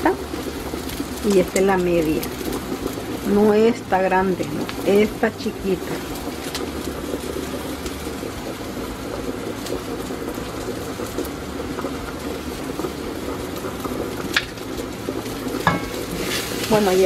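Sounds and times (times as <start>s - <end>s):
rice and vegetables sizzling in oil: 0.0s - 17.0s.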